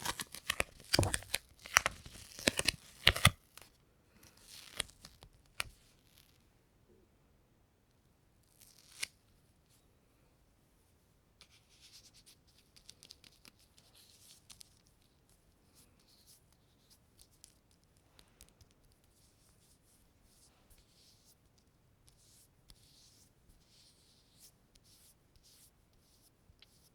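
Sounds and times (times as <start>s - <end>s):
sticky material peeling apart: 0.0s - 3.7s.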